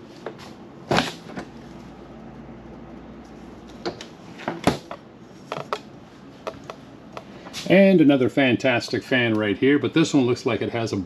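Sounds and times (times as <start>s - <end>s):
steady low hum: 0.0s - 11.0s
knocks and clicks: 3.8s - 7.3s.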